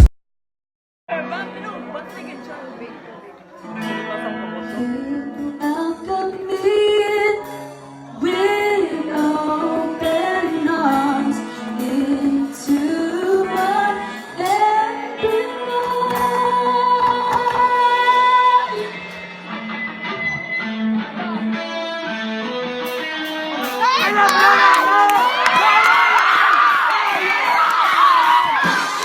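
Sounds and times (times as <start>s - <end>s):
woman singing: 4.6s - 19.1s
band playing: 18.8s - 29.0s.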